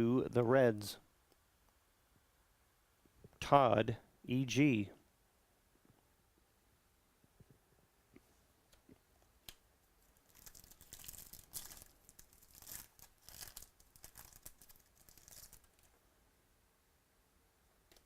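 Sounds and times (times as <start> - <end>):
wrapper clicks: 9.5 - 16.0
wrapper tearing and rustling: 10.1 - 16.0.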